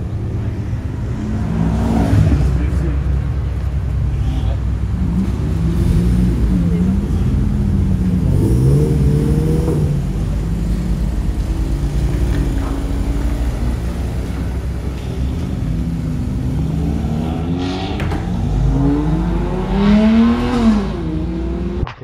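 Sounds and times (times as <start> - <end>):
car engine revving: 0.0 - 21.9.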